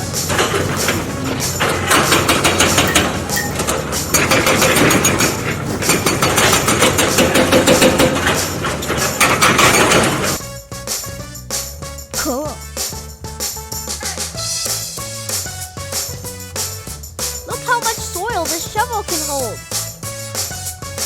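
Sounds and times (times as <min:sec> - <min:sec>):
excavator diesel engine running: 0:00.0 - 0:10.4
rapid clanking and knocking: 0:00.0 - 0:10.4.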